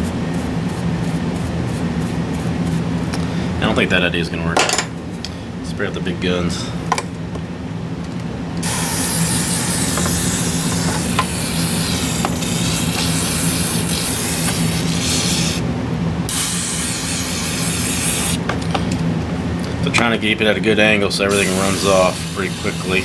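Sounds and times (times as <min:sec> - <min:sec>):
aerosol spray hissing: 0:08.6 - 0:15.6, 0:16.3 - 0:18.4, 0:21.3 - 0:23.0.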